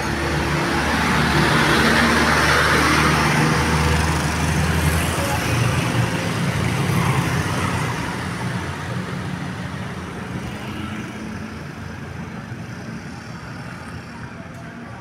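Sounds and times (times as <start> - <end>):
bus diesel engine passing: 0.0 - 10.4.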